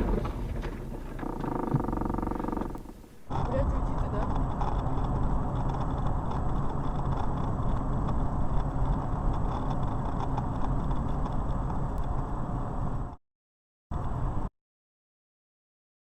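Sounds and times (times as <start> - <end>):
car engine rumbling: 0.0 - 9.5
road noise: 0.0 - 13.2.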